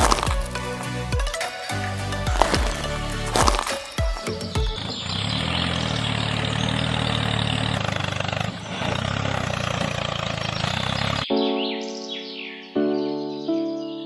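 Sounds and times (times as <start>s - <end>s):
engine running steadily: 4.8s - 11.2s.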